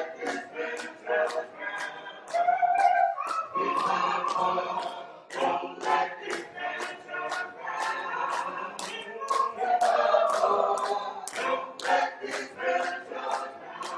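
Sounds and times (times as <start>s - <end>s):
a cappella choir singing a hymn: 0.0s - 13.9s.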